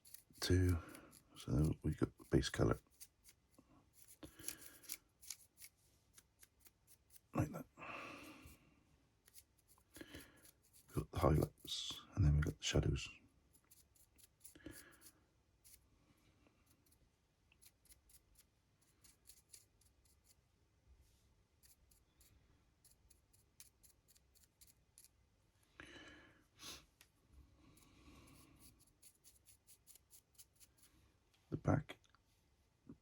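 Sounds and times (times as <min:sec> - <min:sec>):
paintbrush bristles scratching: 0:00.0 - 0:07.3, 0:09.2 - 0:11.9, 0:13.4 - 0:15.8, 0:28.2 - 0:30.9.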